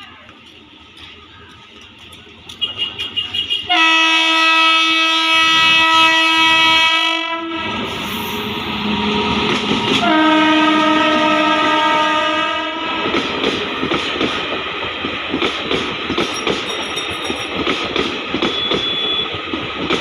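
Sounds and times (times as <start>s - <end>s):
locomotive air horn blasts: 2.6s - 9.4s, 10.0s - 13.1s
train wheels clattering over rail joints: 13.0s - 20.0s.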